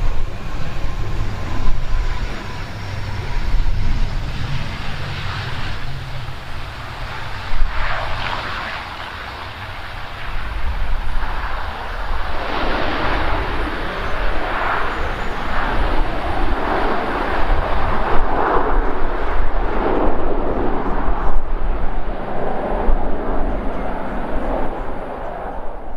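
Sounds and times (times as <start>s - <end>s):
jet engines: 0.0s - 25.9s
wind buffeting microphone: 0.0s - 25.9s.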